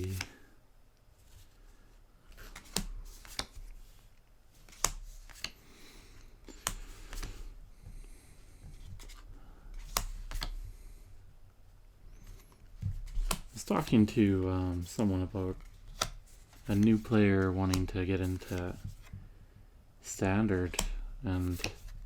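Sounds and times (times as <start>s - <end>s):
cards rustling: 0.0s - 0.4s, 1.2s - 11.0s, 12.1s - 19.2s, 20.1s - 22.0s
trading cards being flipped: 0.0s - 0.4s, 2.3s - 5.7s, 6.5s - 7.5s, 8.7s - 9.2s, 9.8s - 10.6s, 12.2s - 19.1s, 20.6s - 21.9s
card edges clicking: 2.3s - 3.6s, 4.6s - 5.6s, 6.5s - 7.4s, 9.8s - 10.6s, 13.2s - 14.3s, 15.9s - 18.8s, 20.6s - 21.9s.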